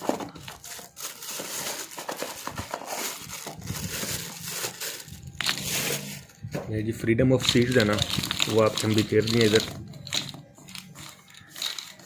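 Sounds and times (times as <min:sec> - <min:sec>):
shotgun cartridges being handled: 0:07.4 - 0:12.0.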